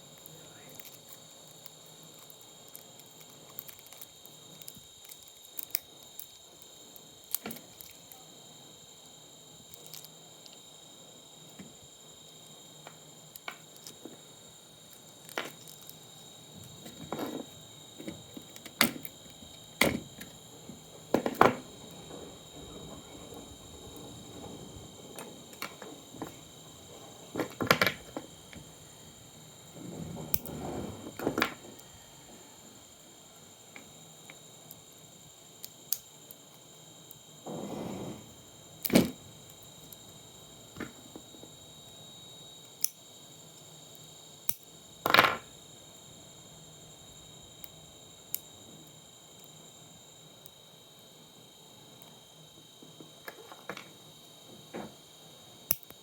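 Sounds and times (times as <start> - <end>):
scraping: 20.2 - 31.9, 37.5 - 39.3
clicks and knocks of tools: 55.7 - 56.0.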